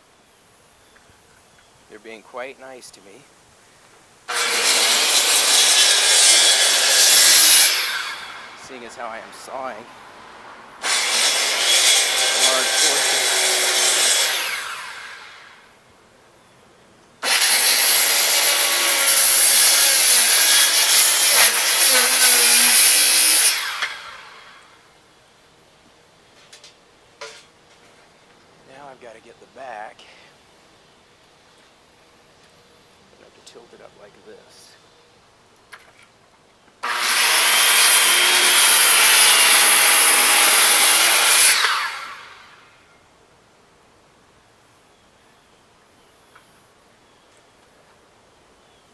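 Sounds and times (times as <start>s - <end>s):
circular saw cutting wood: 4.3s - 9.9s, 10.8s - 15.6s, 17.2s - 24.8s, 36.8s - 42.7s.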